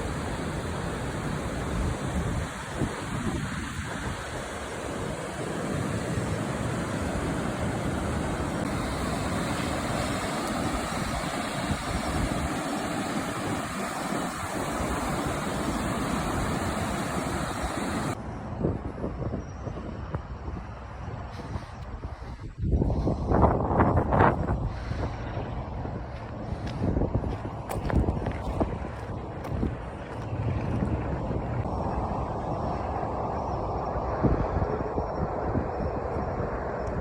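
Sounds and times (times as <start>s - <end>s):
surf rushing hiss: 0.0s - 18.2s
wind buffeting microphone: 0.0s - 37.0s.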